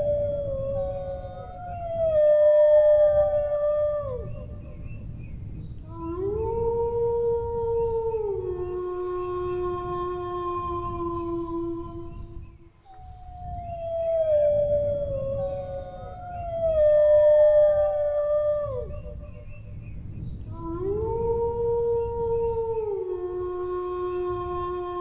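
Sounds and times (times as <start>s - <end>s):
dog howling: 13.0s - 19.2s.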